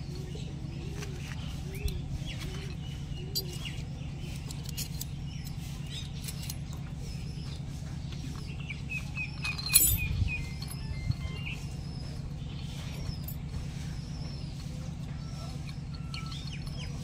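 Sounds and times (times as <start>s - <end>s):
birds chirping: 0.0s - 17.0s
steady low hum: 0.0s - 17.0s
sharp metal clink: 9.3s - 11.4s.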